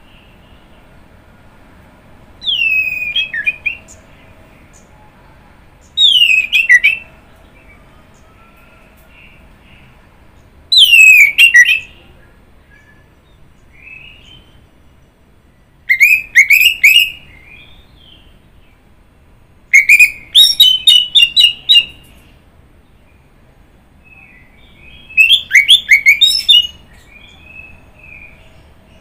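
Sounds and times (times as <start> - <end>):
thrush singing whistled notes: 2.4 - 4.1, 5.9 - 8.6, 10.7 - 12.1, 15.8 - 18.4, 19.7 - 22.1, 24.1 - 28.5.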